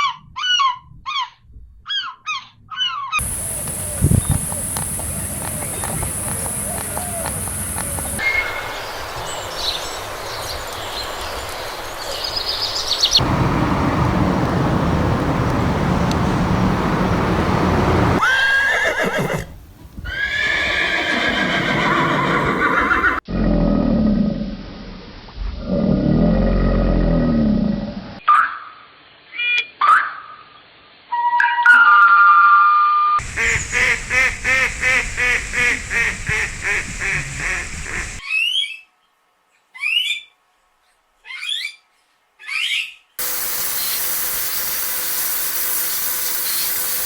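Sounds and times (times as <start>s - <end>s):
horses neighing: 3.2s - 8.2s, 18.0s - 23.2s.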